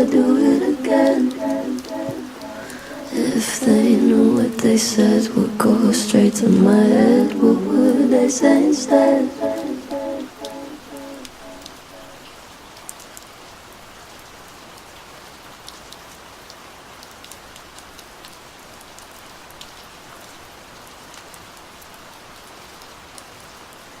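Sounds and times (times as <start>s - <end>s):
raindrops ticking: 0.0s - 5.7s
rain falling: 0.0s - 24.0s.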